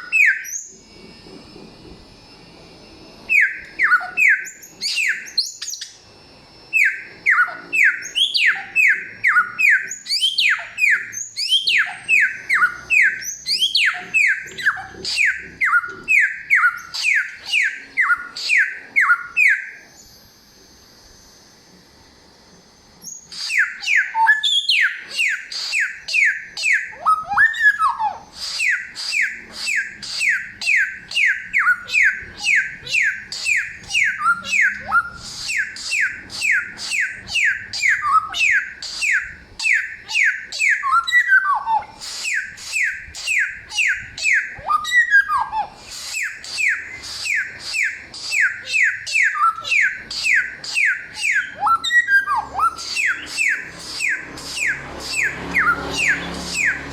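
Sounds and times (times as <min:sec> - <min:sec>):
songbird whistling: 0:00.0 - 0:00.9, 0:03.3 - 0:06.0, 0:06.7 - 0:20.1, 0:23.0 - 0:56.9.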